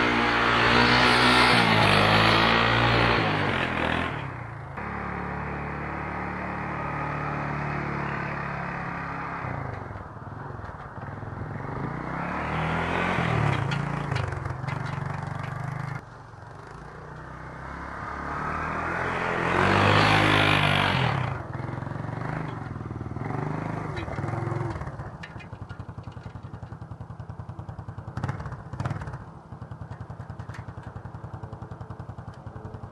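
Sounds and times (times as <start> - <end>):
quad engine revving: 0.0 - 9.8, 11.6 - 14.4, 17.4 - 25.1.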